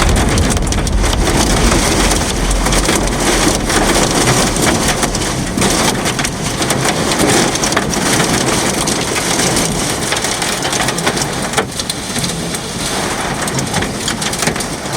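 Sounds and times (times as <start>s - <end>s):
heavy rain pelting down: 0.0s - 14.9s.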